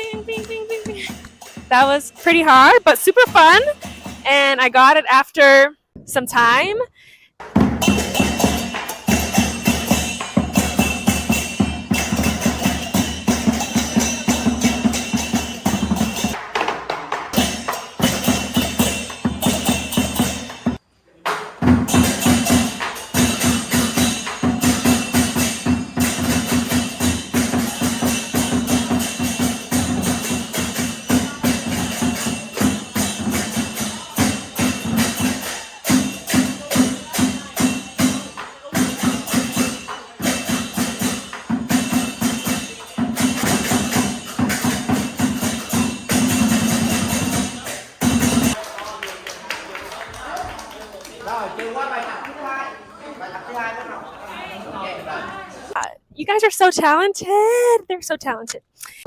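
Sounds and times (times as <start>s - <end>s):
cymbals clashing: 0.0s - 4.2s, 7.5s - 20.8s, 21.7s - 48.6s
drum beaten in fast strokes: 0.0s - 4.5s, 7.4s - 48.6s.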